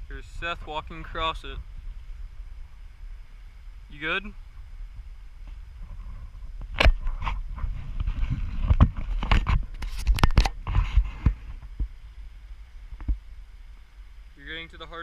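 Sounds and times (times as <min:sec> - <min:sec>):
low rumble: 0:00.0 - 0:09.8.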